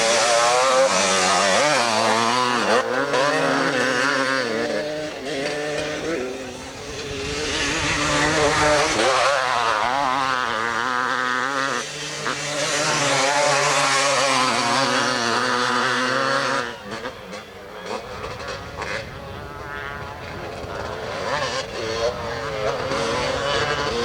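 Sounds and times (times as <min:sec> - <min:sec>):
motocross bikes revving: 0:00.0 - 0:24.0.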